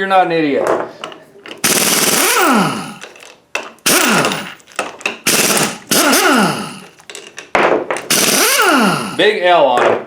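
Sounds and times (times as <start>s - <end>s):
impact wrench hammering: 1.5s - 9.2s.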